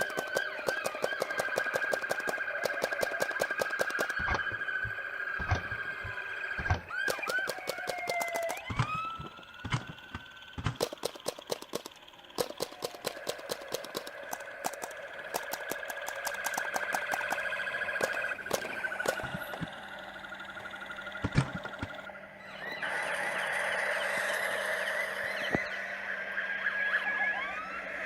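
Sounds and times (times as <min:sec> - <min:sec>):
sharp clicks: 0:00.0 - 0:22.1
siren wailing: 0:00.0 - 0:28.0.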